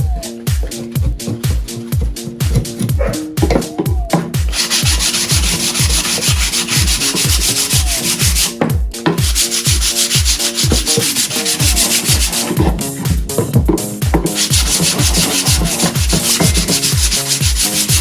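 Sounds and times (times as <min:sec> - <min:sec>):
dance music with thumping beat: 0:00.0 - 0:18.0
wood sanding rasp: 0:00.0 - 0:18.0.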